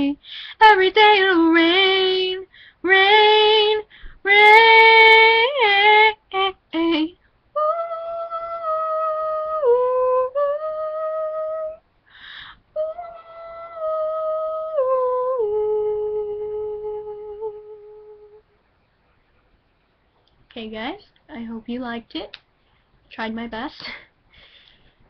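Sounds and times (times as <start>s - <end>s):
woman singing unaccompanied: 0.0s - 11.8s, 12.7s - 18.4s
woman humming slow melody: 12.8s - 18.4s.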